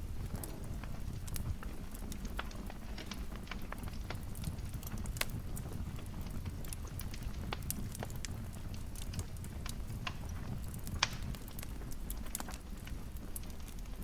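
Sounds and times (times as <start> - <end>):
fire popping: 0.0 - 14.0
wood fire crackling: 0.0 - 14.0.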